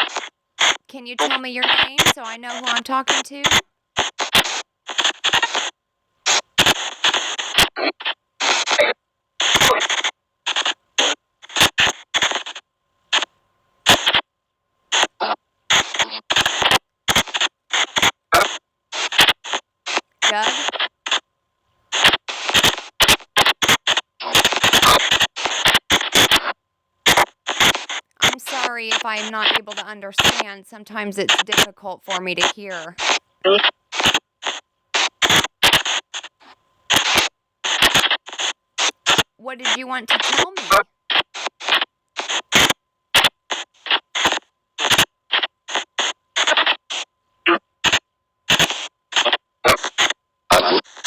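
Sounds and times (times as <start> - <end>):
chopped white noise bursts: 0.0 - 5.7, 27.1 - 47.1.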